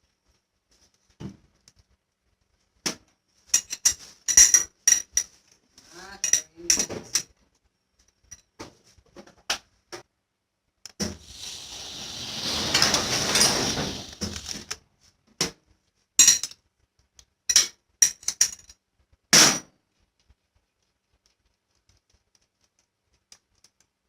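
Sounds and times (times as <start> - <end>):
metal tools clinking: 3.6 - 5.3, 6.2 - 7.3, 12.4 - 14.8
rushing noise: 11.2 - 14.7.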